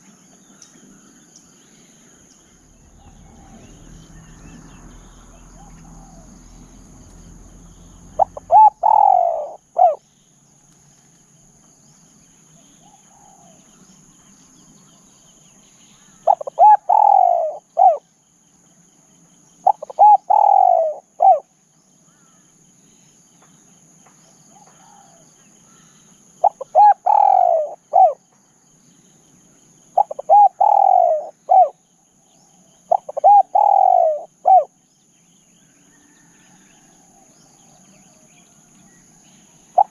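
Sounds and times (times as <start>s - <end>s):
high insect drone: 0.0s - 39.9s
dove cooing: 2.6s - 10.0s, 16.2s - 18.0s, 19.6s - 21.5s, 26.4s - 28.2s, 30.0s - 31.8s, 32.9s - 34.7s.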